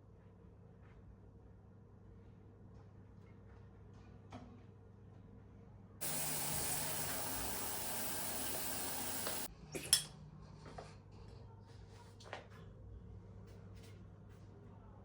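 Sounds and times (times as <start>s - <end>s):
steady hissing rush: 6.0s - 9.5s.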